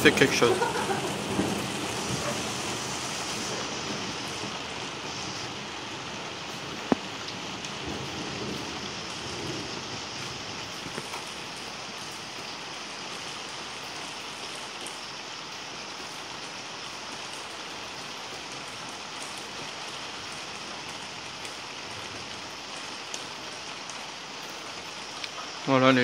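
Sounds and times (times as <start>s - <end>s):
steady rain hiss: 0.0s - 26.0s
rain drop ticks: 6.8s - 7.8s, 10.8s - 11.6s, 25.0s - 25.5s.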